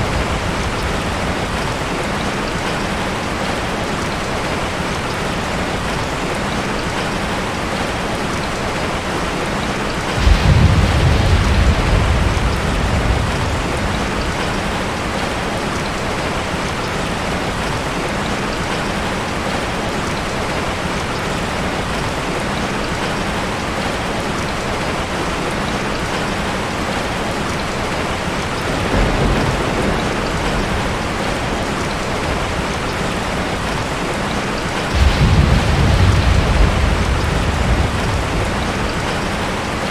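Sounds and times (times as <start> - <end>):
low rumble of thunder: 0.0 - 3.6, 9.4 - 16.7, 27.8 - 39.9
steady rainfall: 0.0 - 39.9.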